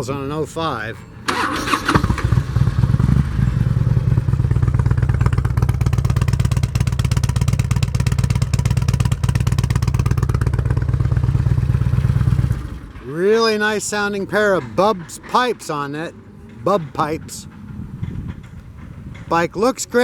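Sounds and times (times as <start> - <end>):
motorcycle engine idling: 1.0 - 19.4.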